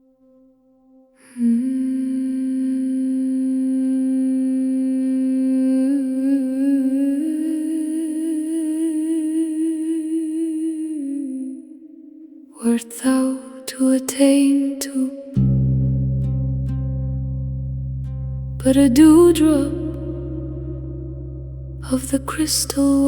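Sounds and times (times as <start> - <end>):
person humming with vibrato: 18.6 - 23.0.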